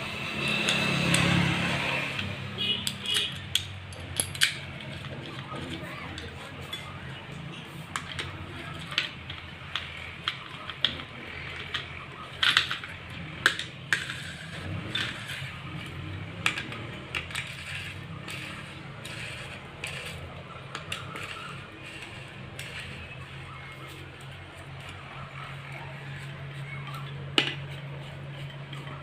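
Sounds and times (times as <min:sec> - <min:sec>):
metal tools clinking and tapping: 0:02.2 - 0:29.0.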